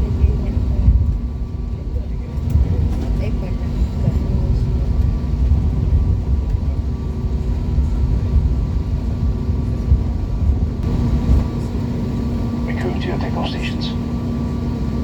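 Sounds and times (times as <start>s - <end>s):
jet engine cabin rumble: 0.0s - 15.0s.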